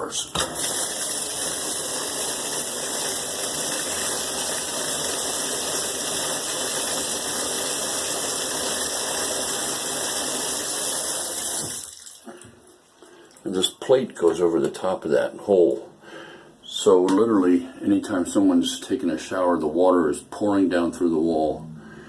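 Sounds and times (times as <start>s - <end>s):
shower water running: 0.0s - 12.4s
water pouring inside wall: 0.0s - 13.7s.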